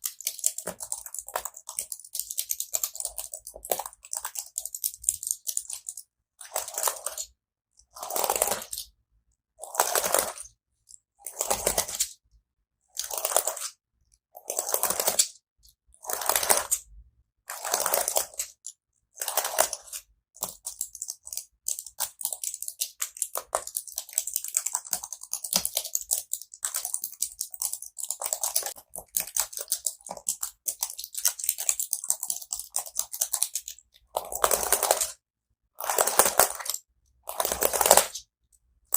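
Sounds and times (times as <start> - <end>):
keyboard keys clicking: 0.0 - 7.3, 19.2 - 35.1.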